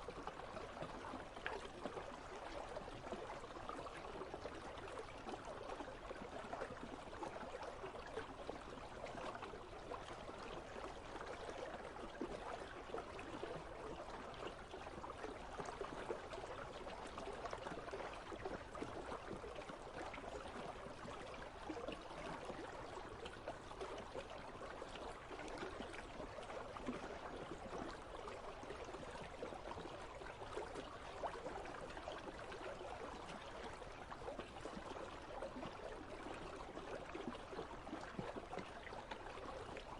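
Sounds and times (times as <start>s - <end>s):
river water gurgling: 0.0s - 39.9s.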